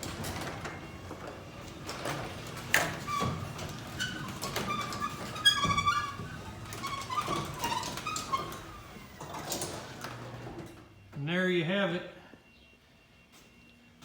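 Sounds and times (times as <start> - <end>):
garage door opener running: 0.0 - 11.2
garage door squeaking: 0.0 - 11.2.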